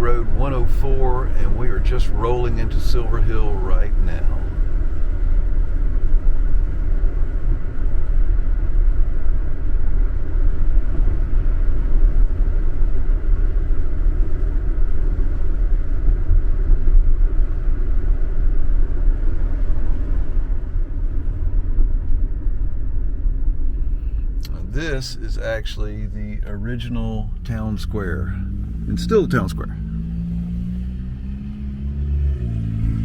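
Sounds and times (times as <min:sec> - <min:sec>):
car driving on road: 0:00.0 - 0:33.0.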